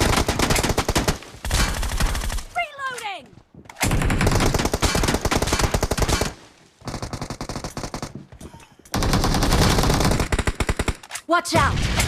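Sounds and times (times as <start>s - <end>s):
automatic gunfire bursts: 9.0s - 11.0s.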